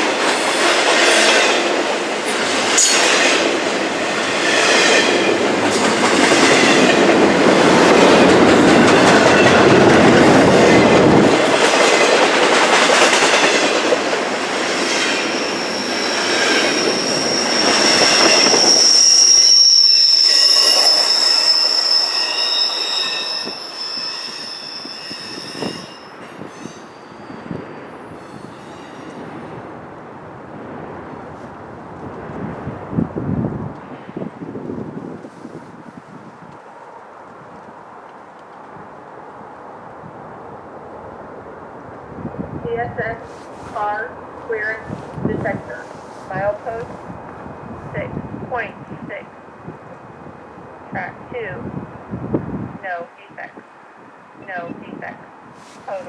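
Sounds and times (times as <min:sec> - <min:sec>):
wheels clattering on rails: 0:00.0 - 0:15.4
freight train rumble: 0:00.0 - 0:56.0
high-pitched wheel squeal: 0:15.2 - 0:29.2.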